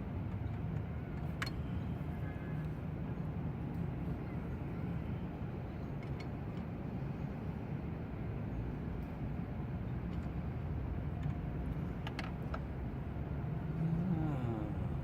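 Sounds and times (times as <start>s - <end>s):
low mechanical rumble: 6.9s - 15.0s.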